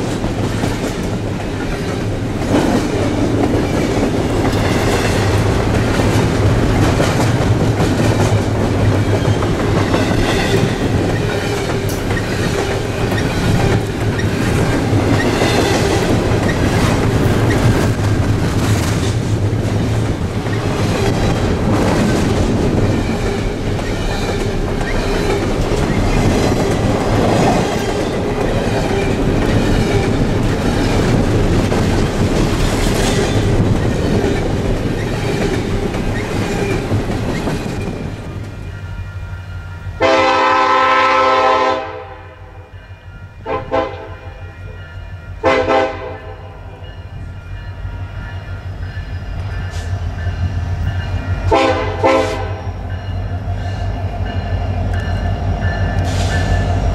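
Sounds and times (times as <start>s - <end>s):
train wheels rumbling on rails: 0.0s - 56.9s
locomotive air horn blasts: 40.0s - 42.6s, 43.4s - 44.5s, 45.4s - 46.5s, 51.5s - 52.6s.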